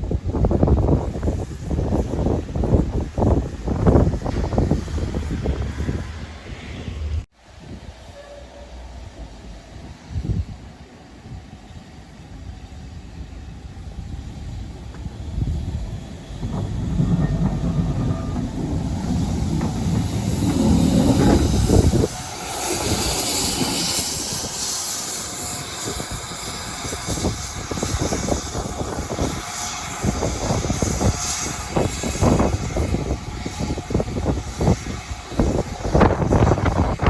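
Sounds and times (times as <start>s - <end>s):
train rumbling past: 0.0s - 37.0s
hiss: 0.4s - 37.0s
irregular knocks and clatter: 14.8s - 23.6s.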